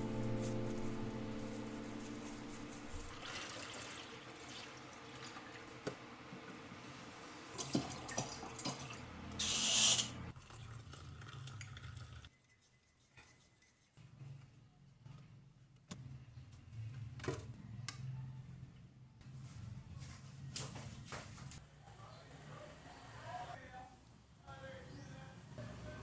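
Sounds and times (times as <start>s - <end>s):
piano music: 0.0s - 3.4s
water running from a tap: 3.0s - 5.8s, 7.5s - 12.3s.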